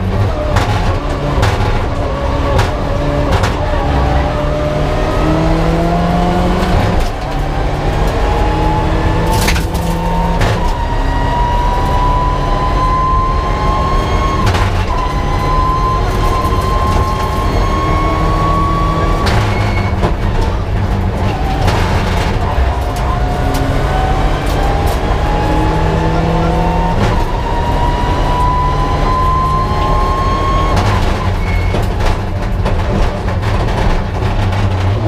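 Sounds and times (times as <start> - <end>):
car engine revving under load: 0.0 - 35.0.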